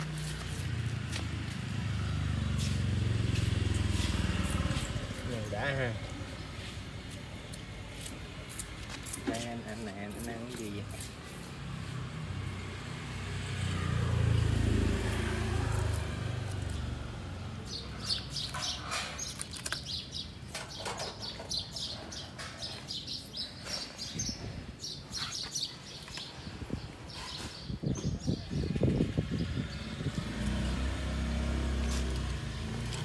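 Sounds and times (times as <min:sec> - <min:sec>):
small birds chirping: 0:15.0 - 0:33.0.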